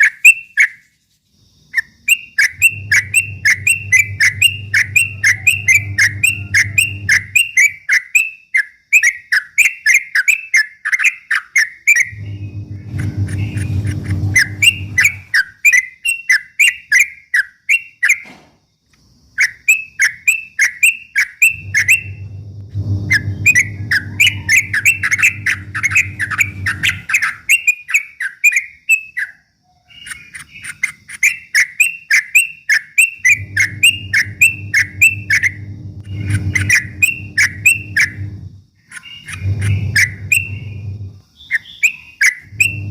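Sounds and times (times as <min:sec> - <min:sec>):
bird singing rapid chirps: 0:01.7 - 0:18.2, 0:19.3 - 0:42.9
low hum: 0:02.5 - 0:07.5, 0:12.1 - 0:15.3, 0:21.5 - 0:27.1, 0:33.3 - 0:38.7, 0:39.3 - 0:41.2, 0:42.4 - 0:42.9.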